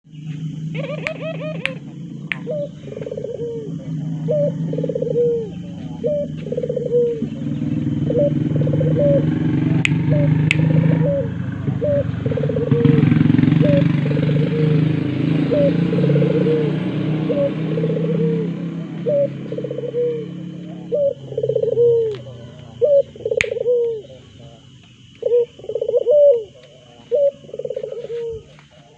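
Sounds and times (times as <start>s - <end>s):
steady low rumble: 0.1s - 14.5s
dove cooing: 0.1s - 28.9s
sharp clicks: 1.0s - 2.5s, 9.8s - 10.8s.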